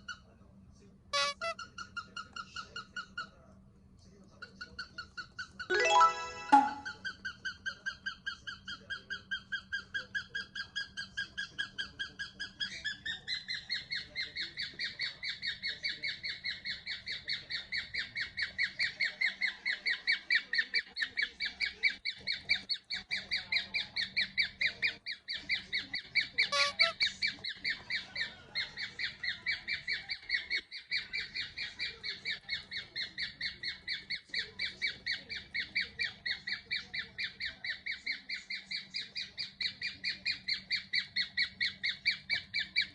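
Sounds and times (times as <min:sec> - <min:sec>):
cockatiel chirping: 0:21.5 - 0:42.9.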